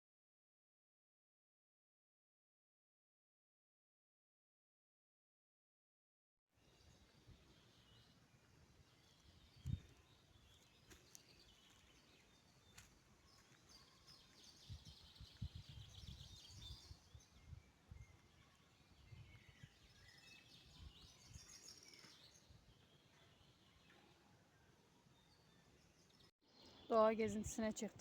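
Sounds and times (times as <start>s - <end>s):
small birds chirping: 6.6s - 28.0s.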